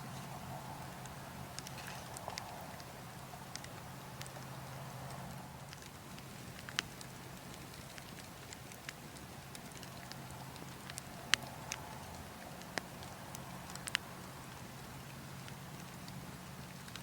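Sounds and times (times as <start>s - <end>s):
burning logs crackling: 0.0s - 17.0s.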